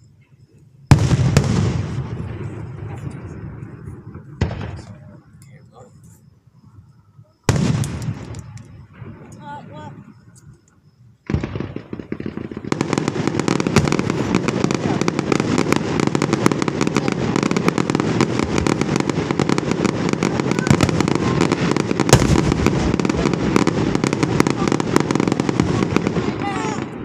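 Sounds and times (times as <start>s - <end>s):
loud firework bang: 0.9s - 3.4s, 11.3s - 27.0s
fireworks crackling: 0.9s - 6.4s, 7.5s - 27.0s.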